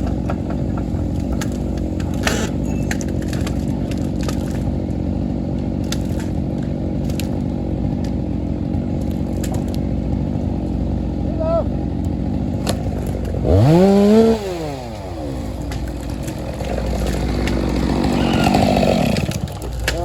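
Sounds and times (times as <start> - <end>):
sharp cracks and clicks: 0.0 - 5.0, 5.6 - 8.2, 9.0 - 9.8, 15.4 - 20.0
diesel engine running: 0.0 - 20.0.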